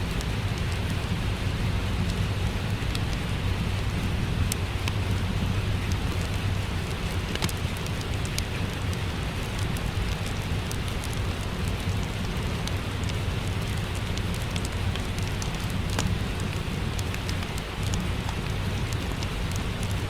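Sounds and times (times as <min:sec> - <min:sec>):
steady rain: 0:00.0 - 0:20.0
wood fire crackling: 0:00.0 - 0:20.0.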